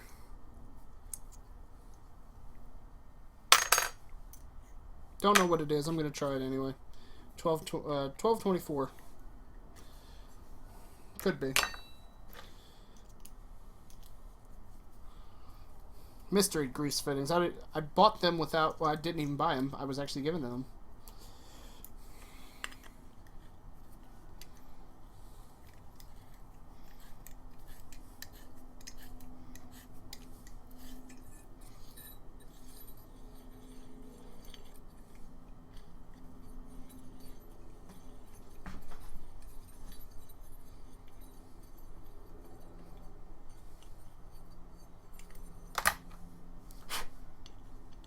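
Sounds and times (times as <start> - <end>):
small metal parts clinking: 3.5 - 4.5, 11.2 - 14.1.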